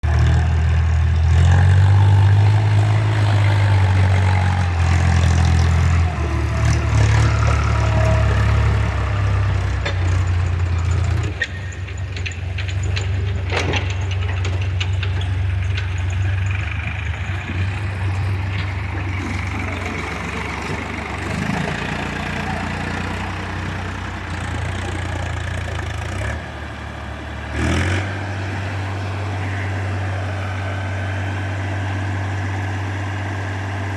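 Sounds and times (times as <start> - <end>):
tractor diesel engine running: 0.0 - 33.9
clicks and knocks: 9.6 - 19.5.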